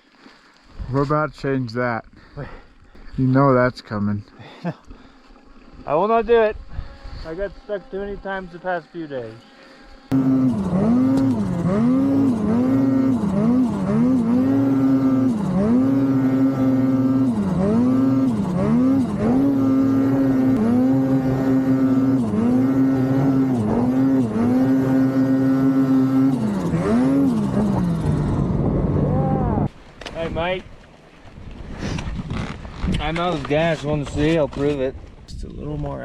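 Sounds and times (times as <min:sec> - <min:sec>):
snowmobile engine revving: 0:05.9 - 0:29.7.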